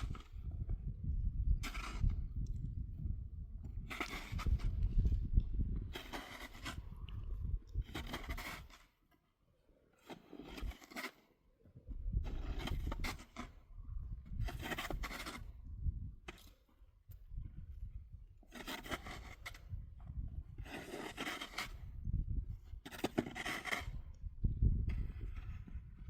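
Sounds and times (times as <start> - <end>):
snow shovel scraping snow: 1.6 - 2.1, 3.9 - 4.8, 5.9 - 7.0, 7.8 - 9.0, 10.0 - 11.3, 12.2 - 13.6, 14.4 - 15.6, 18.4 - 19.7, 20.6 - 22.0, 22.8 - 24.0.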